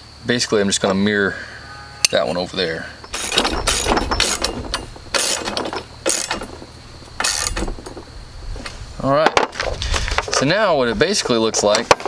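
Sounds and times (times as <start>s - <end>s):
ratchet wrench clicking: 3.1s - 6.6s, 7.2s - 8.0s.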